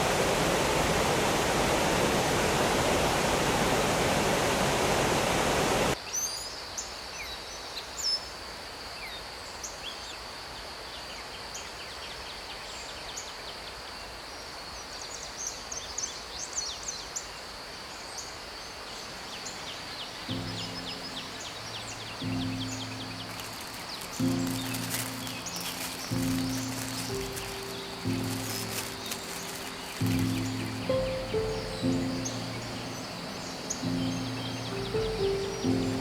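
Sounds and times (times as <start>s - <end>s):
stream rushing over rocks: 0.0s - 6.0s, 20.5s - 36.0s
birds chirping: 20.0s - 36.0s.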